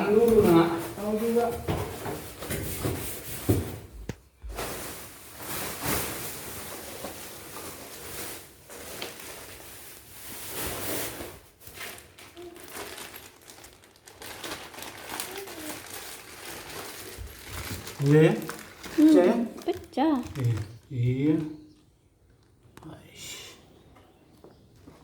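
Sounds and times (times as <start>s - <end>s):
packaging rustling: 4.5s - 22.7s.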